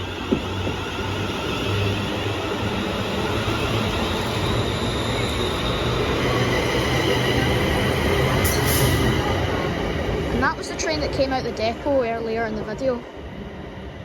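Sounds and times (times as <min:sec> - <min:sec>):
electric train rumbling on rails: 0:00.0 - 0:14.0.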